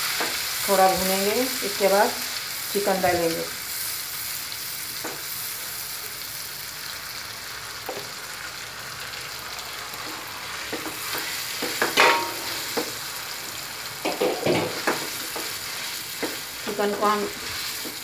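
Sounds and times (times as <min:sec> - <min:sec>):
paste sizzling in hot oil: 0:00.0 - 0:18.0
spatula scraping and knocking pan: 0:10.1 - 0:13.0, 0:14.0 - 0:18.0.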